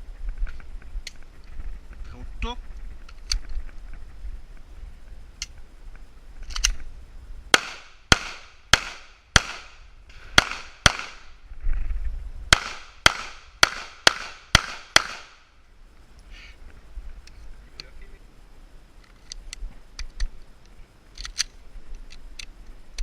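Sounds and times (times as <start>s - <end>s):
pistol shots with echo: 7.5s - 11.3s, 12.5s - 15.4s.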